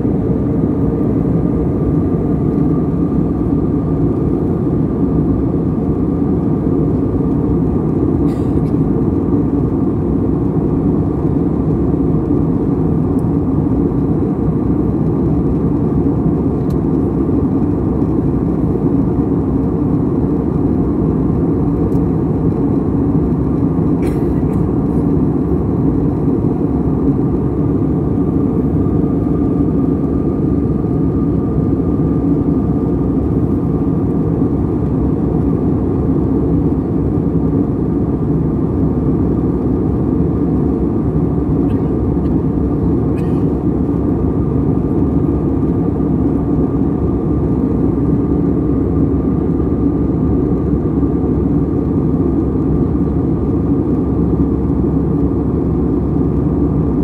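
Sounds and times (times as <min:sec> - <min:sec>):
jet airliner cabin noise: 0:00.0 - 0:57.0.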